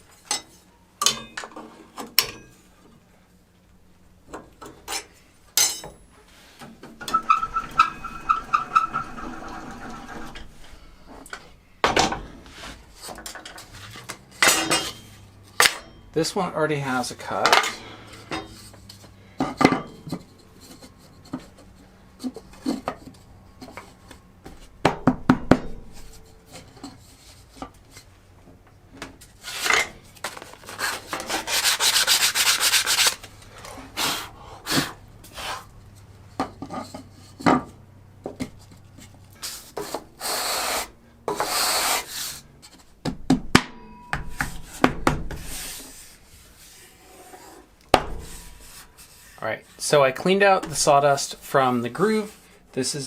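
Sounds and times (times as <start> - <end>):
rapid rubbing: 7.1 - 11.2.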